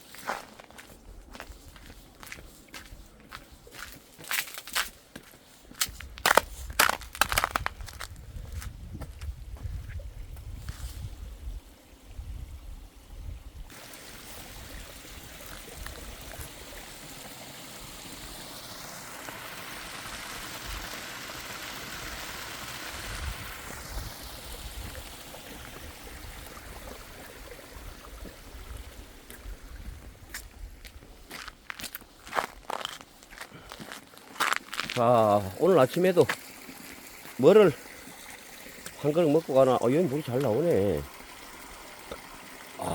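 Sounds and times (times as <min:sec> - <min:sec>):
spring water running: 0:13.7 - 0:42.9.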